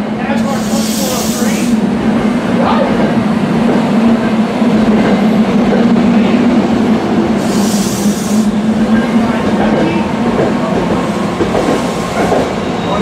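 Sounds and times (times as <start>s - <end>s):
train rumbling: 0.0s - 13.0s
hiss of air: 0.4s - 1.8s, 7.4s - 8.6s.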